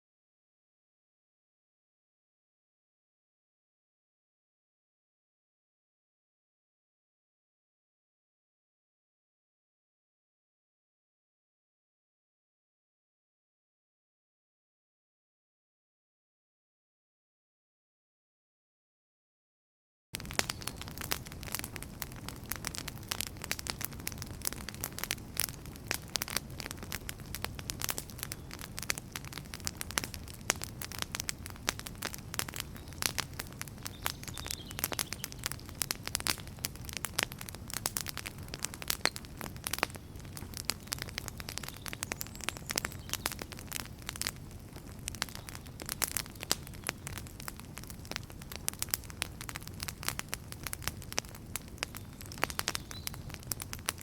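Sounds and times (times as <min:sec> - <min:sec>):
fire crackling and popping: 0:20.2 - 0:54.0.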